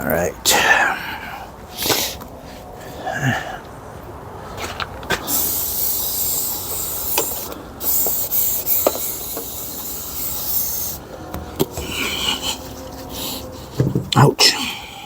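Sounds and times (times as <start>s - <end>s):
pressure washer spraying water: 5.2s - 11.1s.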